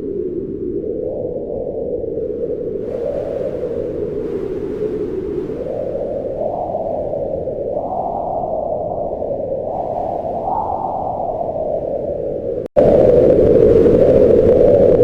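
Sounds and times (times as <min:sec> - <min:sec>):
wind blowing in gusts: 0:00.0 - 0:15.0.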